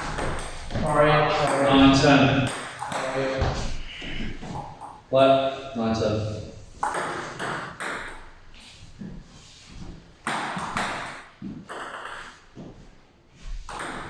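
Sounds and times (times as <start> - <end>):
table tennis ball pinging: 0.0 - 3.7, 6.8 - 8.4, 10.2 - 12.8, 13.7 - 14.0.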